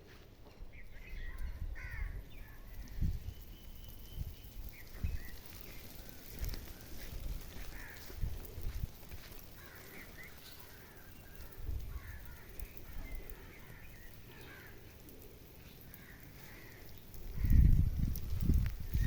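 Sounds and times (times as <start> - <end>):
faint bird chirps: 0.6 - 7.0, 9.6 - 17.8.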